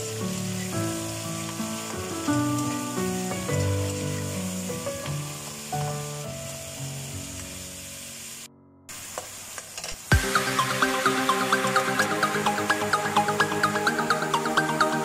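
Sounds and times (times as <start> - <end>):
soft background music: 0.0 - 8.0, 10.1 - 15.0
mushrooms sizzling in a wok: 0.0 - 15.0
electronic music with steady beat: 10.1 - 15.0.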